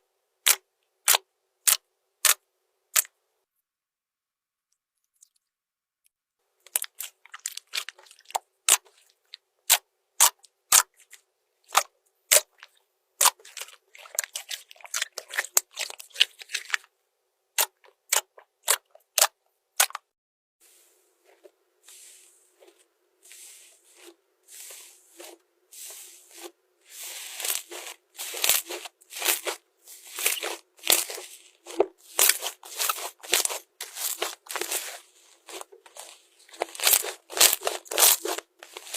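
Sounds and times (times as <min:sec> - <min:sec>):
slime clicking and squishing: 0:00.4 - 0:03.1, 0:06.6 - 0:16.9, 0:17.6 - 0:20.0, 0:26.3 - 0:38.9.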